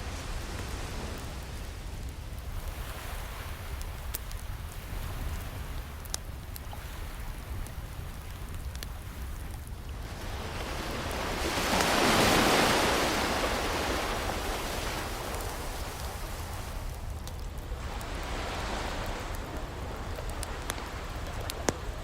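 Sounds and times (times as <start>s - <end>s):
wood fire crackling pops: 0.0s - 10.3s, 19.0s - 22.0s
ocean waves breaking: 0.0s - 22.0s.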